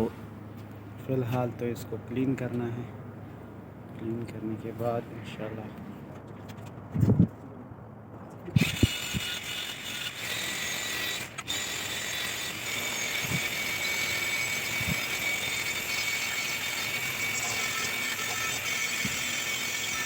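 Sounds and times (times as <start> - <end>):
angle grinder grinding metal: 8.6 - 20.0.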